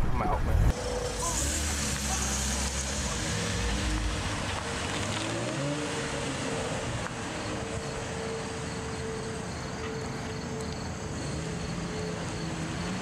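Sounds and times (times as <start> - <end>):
car engine revving: 0.4 - 9.4.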